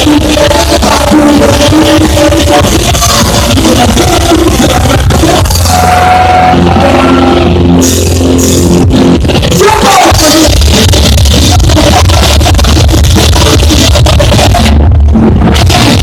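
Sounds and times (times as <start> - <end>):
rock band playing loudly: 0.0 - 16.0
long held notes: 5.1 - 9.1.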